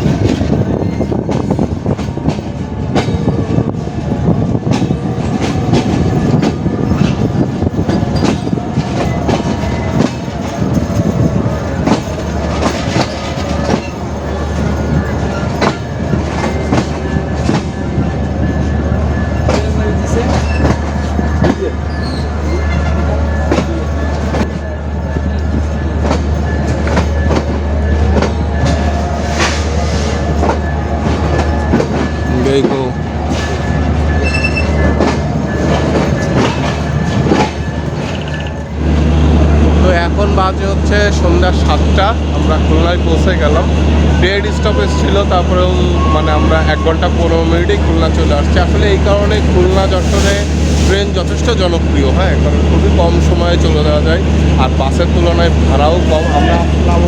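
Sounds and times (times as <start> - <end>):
train wheels clattering over rail joints: 0.0 - 38.8.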